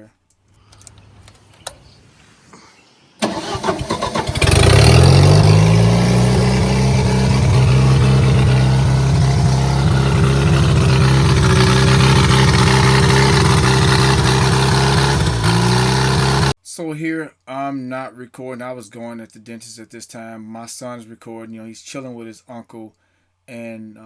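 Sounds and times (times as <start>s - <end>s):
engine cranking and starting: 0.5s - 2.0s, 3.2s - 16.5s
engine running at fast idle: 3.2s - 16.5s.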